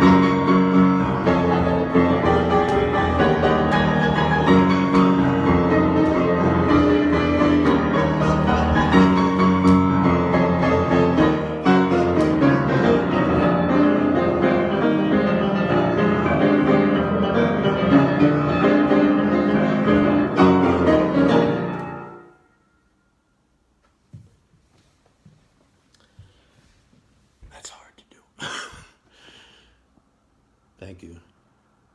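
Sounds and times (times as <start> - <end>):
improvised piano music: 0.0 - 22.8.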